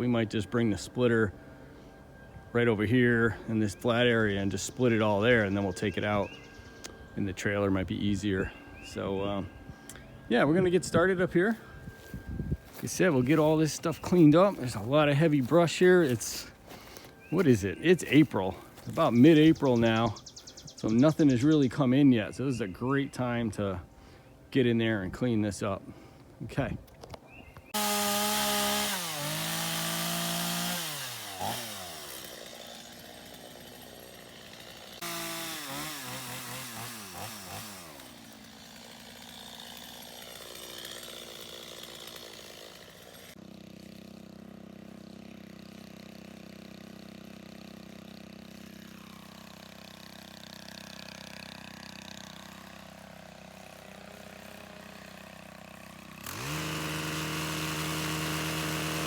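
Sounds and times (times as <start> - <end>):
chainsaw revving: 27.7 - 59.0.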